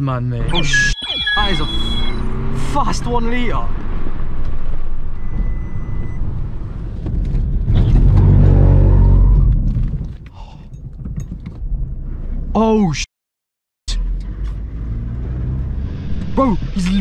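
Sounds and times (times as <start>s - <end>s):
car engine: 0.6s - 10.2s, 13.9s - 17.0s
road noise: 1.4s - 12.6s, 13.9s - 17.0s.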